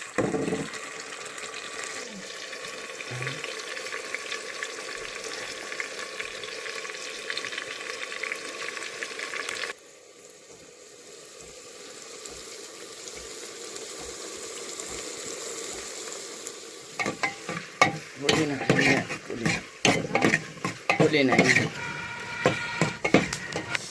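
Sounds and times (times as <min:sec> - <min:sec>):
food sizzling in a pan: 0:00.0 - 0:23.9
utensil scraping a pan: 0:17.0 - 0:23.9.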